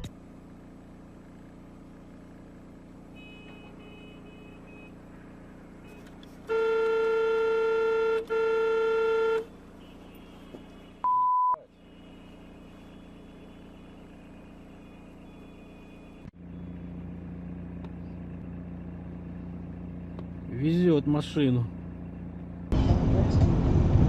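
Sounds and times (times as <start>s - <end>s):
vehicle running hum: 0.0s - 24.0s
vehicle horn blasts: 3.1s - 5.0s, 5.8s - 16.2s
short high beep: 11.0s - 11.7s.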